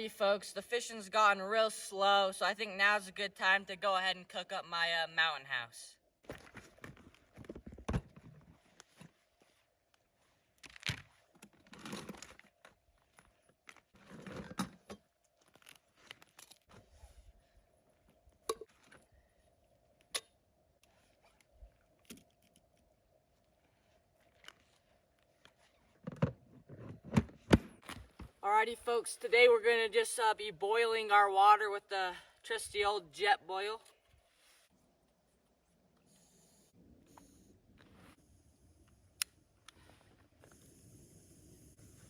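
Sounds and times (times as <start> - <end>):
clicks and clinks of handled gear: 9.9 - 16.8, 20.0 - 26.0.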